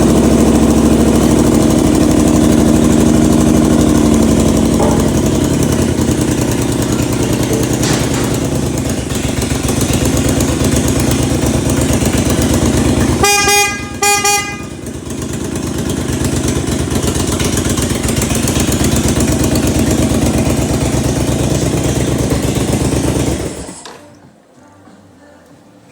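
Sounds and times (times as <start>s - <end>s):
motorcycle engine idling: 0.0s - 23.8s
horn beeps: 12.5s - 15.0s.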